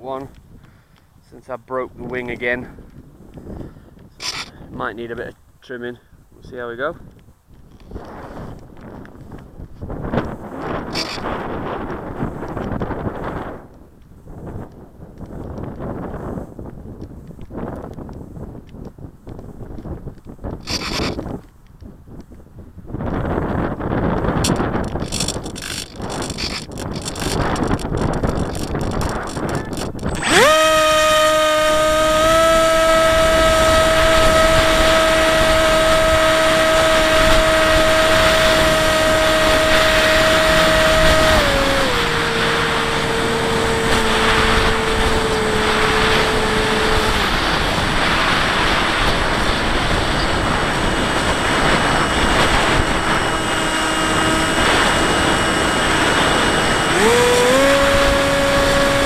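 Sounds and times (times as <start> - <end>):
rushing wind: 0.0 - 59.0
model plane motor whining: 3.5 - 4.6, 10.0 - 13.4, 20.5 - 21.4, 24.0 - 59.0.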